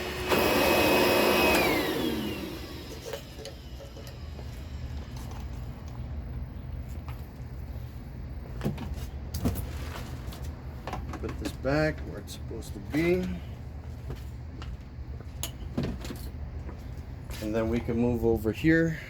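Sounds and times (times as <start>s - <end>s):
vacuum blower motor whine: 0.0s - 5.7s.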